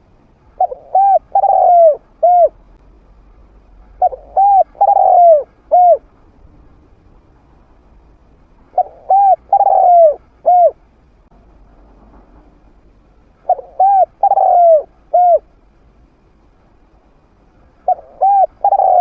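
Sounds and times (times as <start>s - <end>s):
dove cooing: 0.6s - 2.6s, 4.0s - 6.1s, 8.7s - 10.8s, 13.4s - 15.5s, 17.8s - 19.0s.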